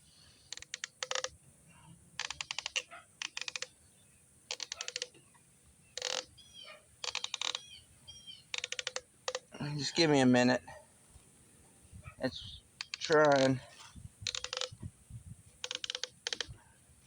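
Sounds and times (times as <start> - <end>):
ratchet wrench clicking: 0.5 - 1.3, 8.6 - 9.5, 14.3 - 14.8, 15.6 - 16.5
faint bird chirps: 1.7 - 9.0, 11.9 - 14.7.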